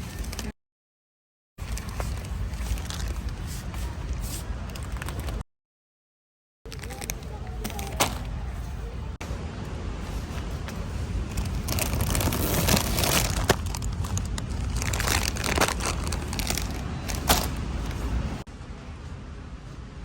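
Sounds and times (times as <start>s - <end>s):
crinkling and rustling handling: 0.0s - 0.5s, 1.6s - 5.4s, 6.7s - 9.2s, 10.0s - 18.5s.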